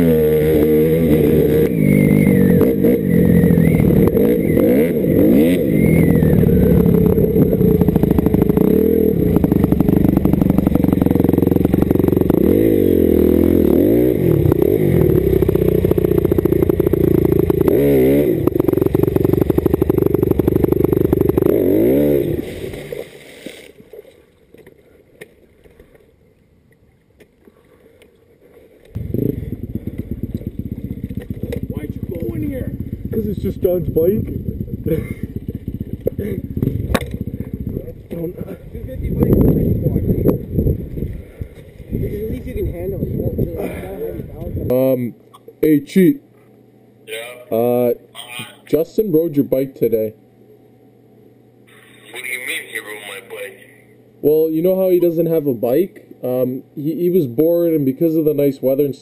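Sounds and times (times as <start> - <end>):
dirt bike engine revving: 0.0 - 23.2, 29.0 - 40.8.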